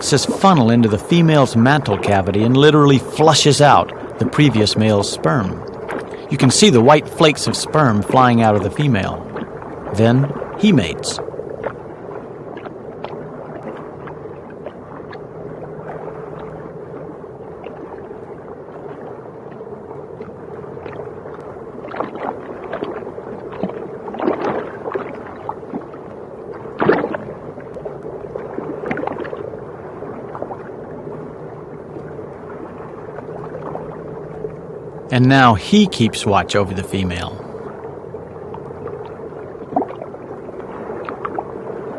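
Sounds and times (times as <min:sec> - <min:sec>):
low underwater hum: 0:00.0 - 0:21.8.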